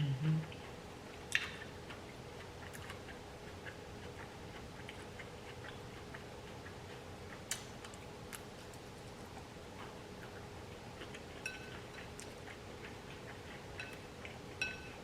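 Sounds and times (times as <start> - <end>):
soft chewing: 0.0 - 15.0
wet mouth clicks: 0.2 - 7.7.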